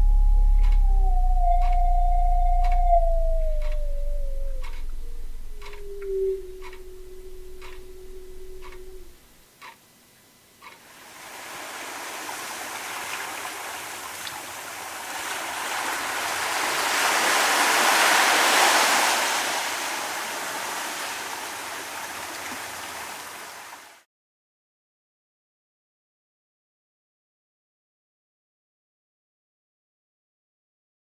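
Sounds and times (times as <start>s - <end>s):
propeller churning water: 10.9s - 23.8s.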